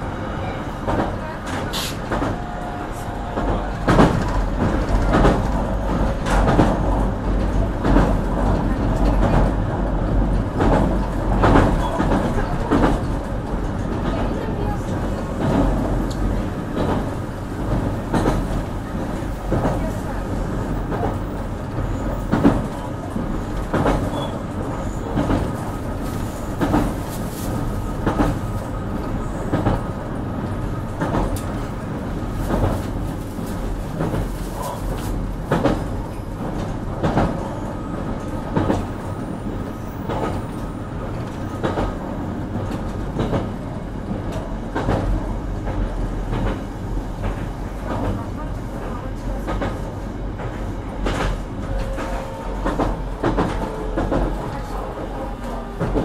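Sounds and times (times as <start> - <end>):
constant train rumble: 0.0 - 56.0
wheels clacking over rail joints: 0.8 - 28.6.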